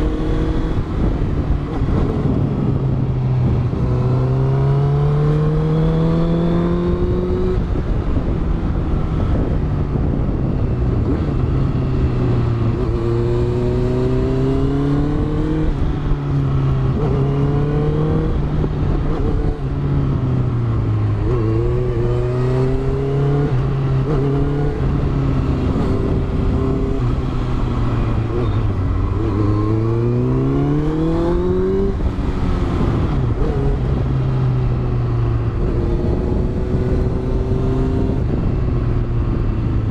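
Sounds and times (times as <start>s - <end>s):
motorcycle engine accelerating: 0.0s - 39.9s
wind rushing: 0.0s - 39.9s.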